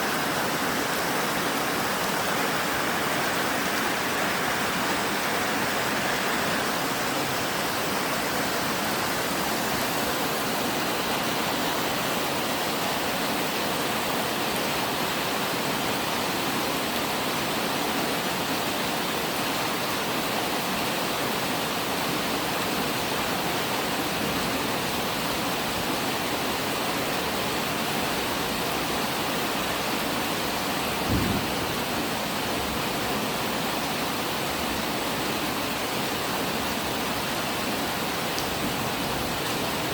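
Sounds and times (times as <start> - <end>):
steady rain falling: 0.0 - 39.9
brief low thump: 31.1 - 31.8.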